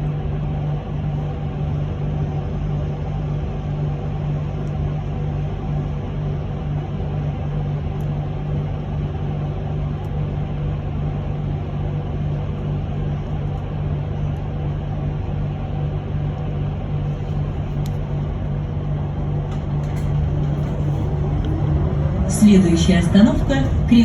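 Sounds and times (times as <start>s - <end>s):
bus cabin hum: 0.0s - 24.0s
constant rumble: 0.0s - 24.0s
faint steady tones: 16.8s - 24.0s.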